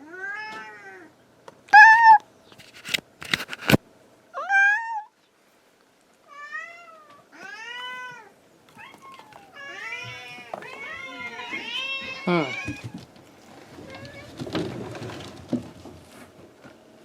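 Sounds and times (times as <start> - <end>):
cat meowing: 1.8 - 2.2, 6.3 - 13.0.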